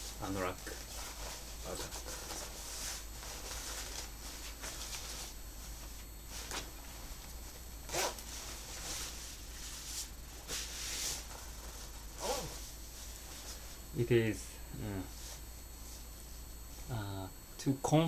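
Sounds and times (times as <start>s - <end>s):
rain jacket rustling: 0.2s - 13.9s
zipper: 7.9s - 8.3s, 12.1s - 12.6s.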